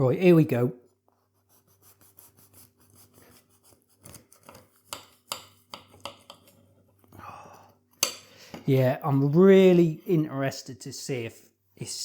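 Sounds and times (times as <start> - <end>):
knife sawing through burger: 1.4 - 5.0.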